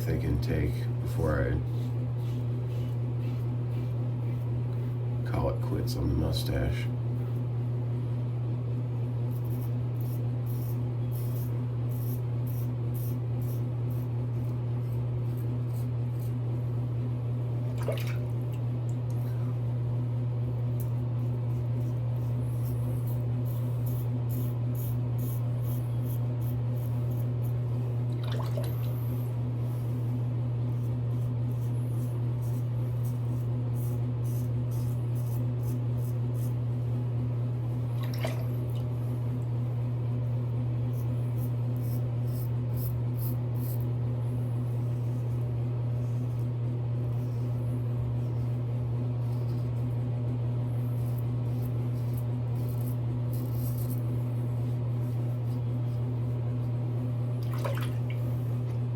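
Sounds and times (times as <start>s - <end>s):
razor scraping stubble: 0.0s - 7.4s, 9.2s - 16.5s, 20.7s - 28.0s, 28.8s - 36.9s, 40.8s - 57.0s.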